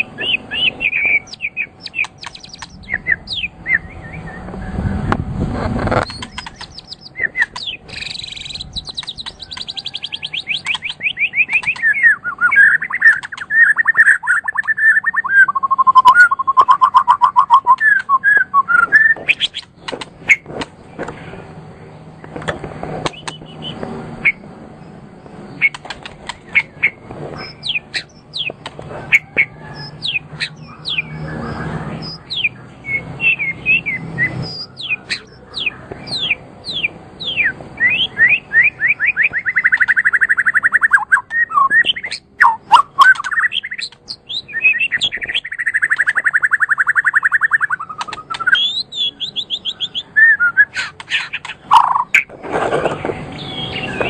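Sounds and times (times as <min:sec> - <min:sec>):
songbird singing with trills: 0:00.0 - 0:04.8, 0:06.0 - 0:20.4, 0:23.1 - 0:52.3, 0:53.0 - 0:54.0.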